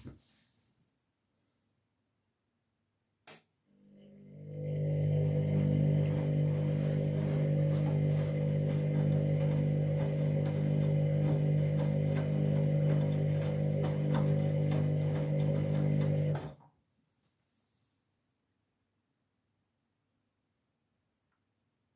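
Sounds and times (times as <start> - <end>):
washing machine humming: 3.8 - 16.6.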